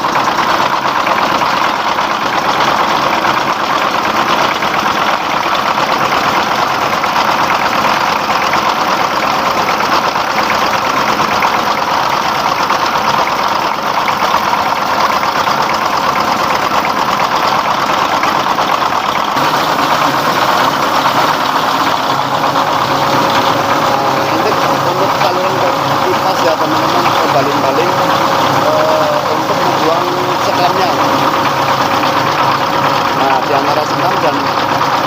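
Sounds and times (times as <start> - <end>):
diesel engine knocking: 0.0 - 35.0
fan whirring: 0.0 - 35.0.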